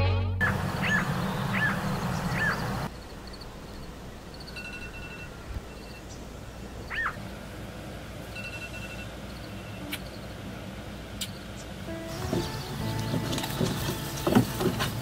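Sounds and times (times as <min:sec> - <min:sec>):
whistled bird notes: 0:00.4 - 0:02.8
birds calling: 0:00.4 - 0:07.5, 0:11.1 - 0:15.0.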